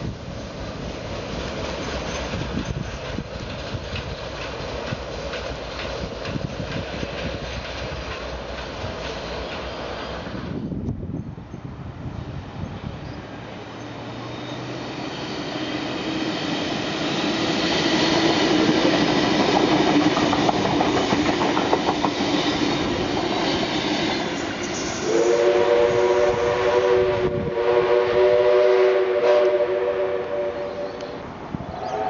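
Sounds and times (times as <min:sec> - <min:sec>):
train passing with roar: 0:00.0 - 0:32.0
wheels clicking over rail joints: 0:01.0 - 0:10.0, 0:18.2 - 0:24.8
train horn chord: 0:24.8 - 0:31.1.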